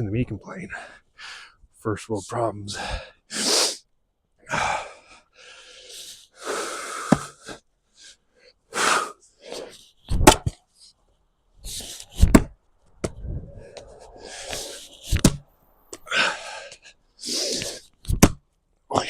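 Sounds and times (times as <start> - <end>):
man breathing heavily: 0.7 - 1.7, 2.8 - 3.8, 4.4 - 9.9, 13.2 - 15.2, 15.8 - 18.0
axe striking a log: 10.1 - 10.6, 12.2 - 12.5, 18.1 - 18.4.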